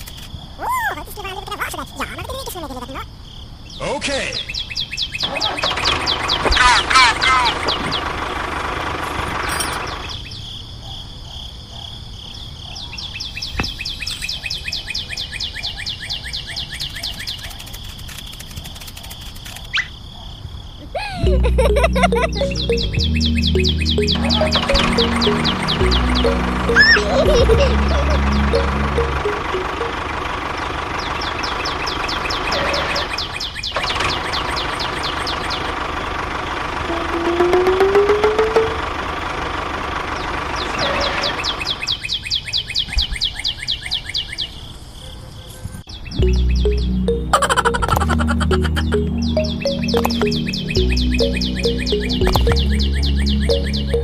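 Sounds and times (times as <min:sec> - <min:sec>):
insects chirping: 0:00.0 - 0:29.3
bird chirps: 0:03.7 - 0:08.2, 0:12.6 - 0:18.4, 0:21.7 - 0:35.7, 0:45.9 - 0:54.0
small engine running: 0:33.8 - 0:41.8.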